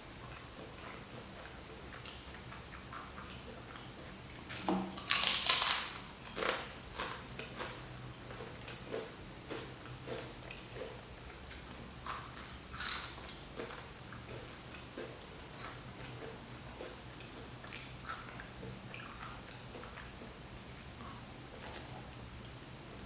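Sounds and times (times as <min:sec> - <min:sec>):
soft chewing: 0:00.0 - 0:23.0
crunchy bite: 0:04.5 - 0:07.2.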